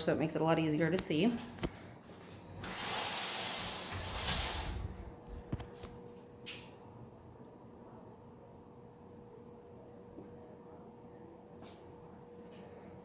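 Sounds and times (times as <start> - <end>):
shower door sliding open: 2.6 - 5.0.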